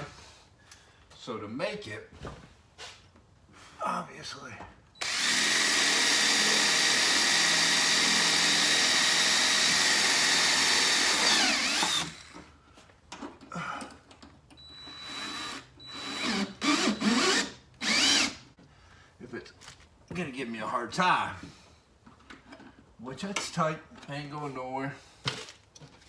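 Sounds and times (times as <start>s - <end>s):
power drill running: 5.0s - 12.4s, 14.7s - 18.5s.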